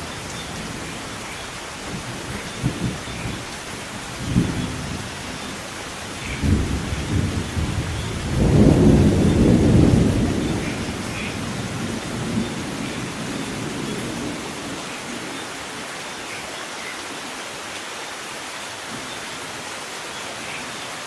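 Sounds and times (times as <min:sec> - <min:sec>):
steady rain: 0:00.0 - 0:21.0
thunder booms and rumble: 0:04.2 - 0:05.1, 0:06.3 - 0:14.4.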